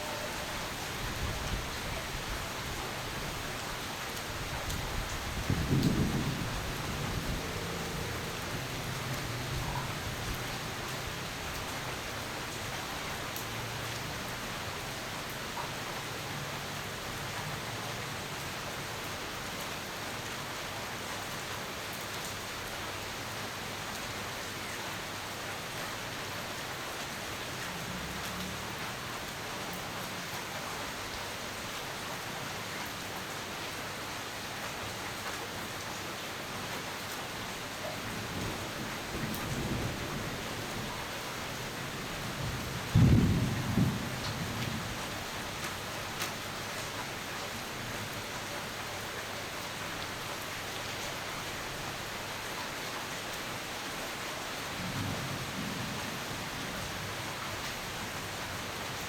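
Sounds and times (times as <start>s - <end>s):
heavy rain falling: 0.0s - 59.0s
distant thunder rumble: 4.4s - 10.8s, 38.3s - 45.4s.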